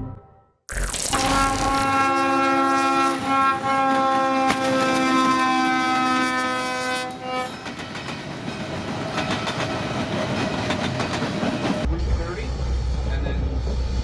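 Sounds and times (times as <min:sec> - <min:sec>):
train horn: 0:02.1 - 0:07.8.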